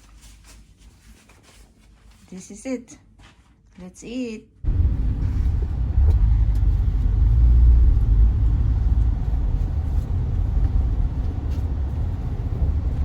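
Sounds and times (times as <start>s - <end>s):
loud low rumble: 4.6s - 13.0s.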